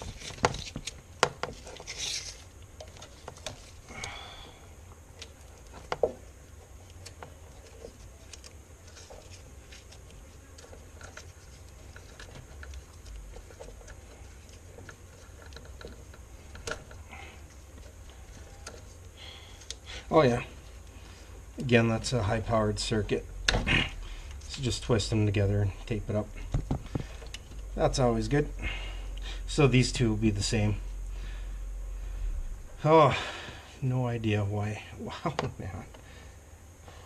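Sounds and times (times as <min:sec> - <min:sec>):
clicks and rustles of hand work: 0:00.0 - 0:03.9, 0:05.1 - 0:19.8
steady low hum: 0:00.0 - 0:37.0.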